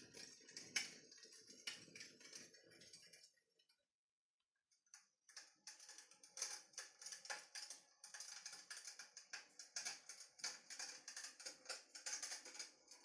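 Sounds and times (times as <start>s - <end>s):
electric fireplace crackling: 0.0s - 3.2s.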